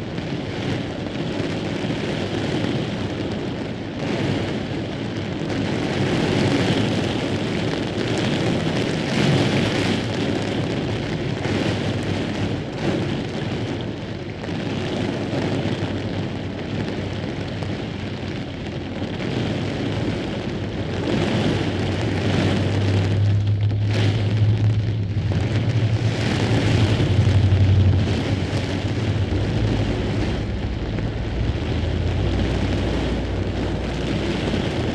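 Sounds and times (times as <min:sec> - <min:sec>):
heavy rain falling: 0:00.0 - 0:34.9
deep low rumble of thunder: 0:14.9 - 0:34.9.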